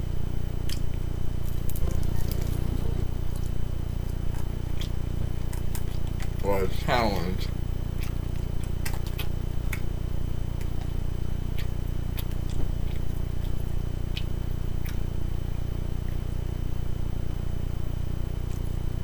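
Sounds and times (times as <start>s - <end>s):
steady low hum: 0.0s - 19.0s
chewing chicken wings: 0.6s - 16.5s, 18.3s - 19.0s
mouth clicks and smacks: 7.9s - 9.9s, 10.6s - 15.1s.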